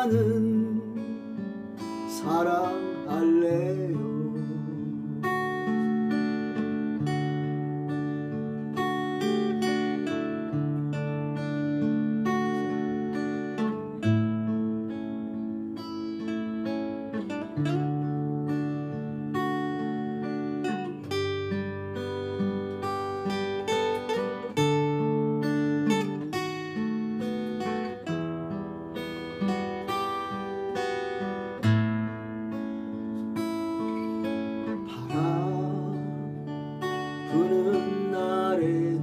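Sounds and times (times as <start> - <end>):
person singing: 0.0 - 1.4, 2.0 - 5.5, 33.9 - 39.0
acoustic guitar playing: 0.0 - 39.0.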